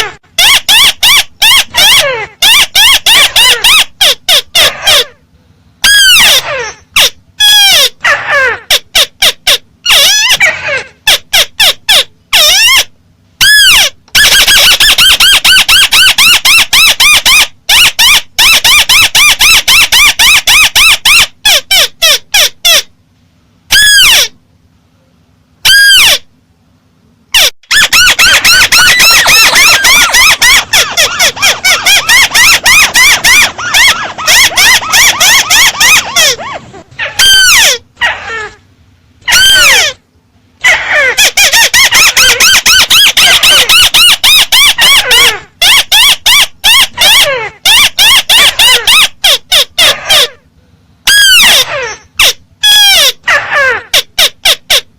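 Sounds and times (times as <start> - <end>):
bird calling in high notes: 27.4 - 38.6.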